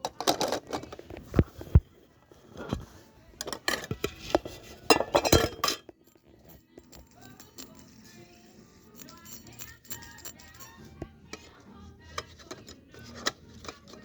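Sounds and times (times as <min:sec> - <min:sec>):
metal fidget spinners clinking: 0:04.9 - 0:11.5.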